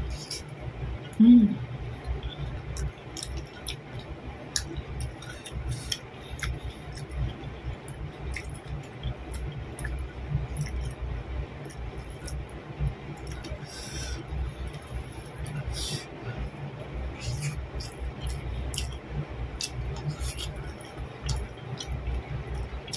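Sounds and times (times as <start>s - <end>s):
steady low rumble: 0.0s - 22.9s
wet chewing and mouth clicks: 2.0s - 11.0s, 11.6s - 12.6s, 13.2s - 16.0s, 17.2s - 22.9s.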